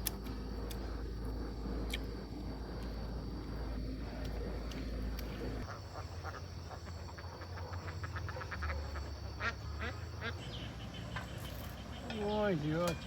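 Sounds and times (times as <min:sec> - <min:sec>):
ducks quacking: 0:05.6 - 0:11.0.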